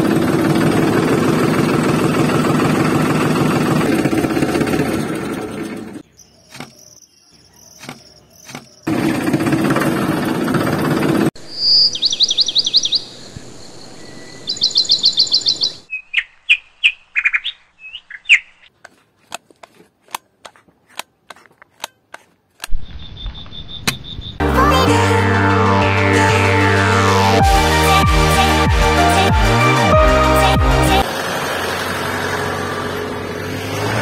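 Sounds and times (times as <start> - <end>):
loud steady mechanical noise: 0.0 - 6.0, 8.5 - 11.4
small birds chirping: 6.0 - 8.9, 11.4 - 18.8.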